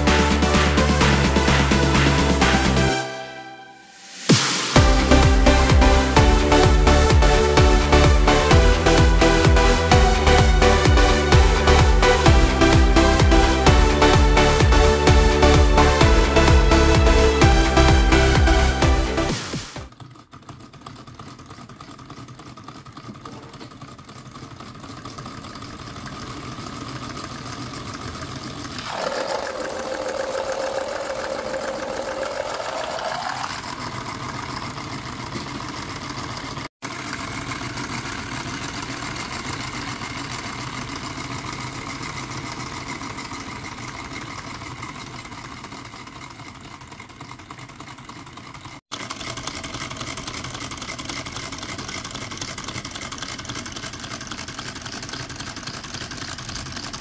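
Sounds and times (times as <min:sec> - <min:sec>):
solenoid engine buzzing: 0:27.4 - 0:48.2.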